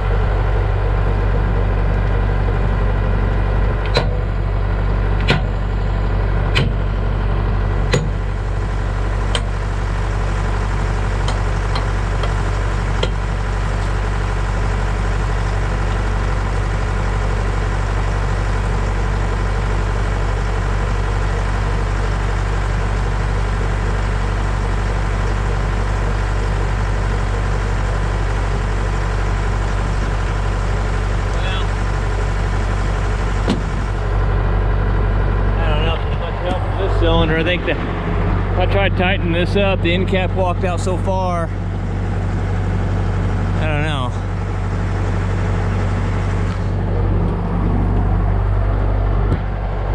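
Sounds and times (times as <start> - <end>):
backhoe engine idling: 0.0 - 49.9.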